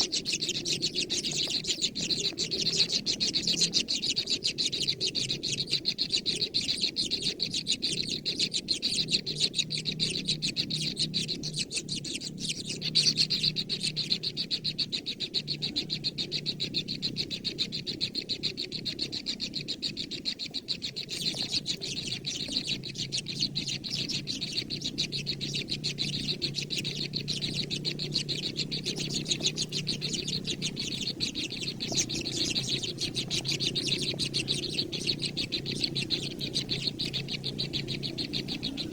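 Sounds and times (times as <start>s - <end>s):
baby birds chirping: 0.0s - 38.9s
steady low background sound: 20.9s - 38.9s.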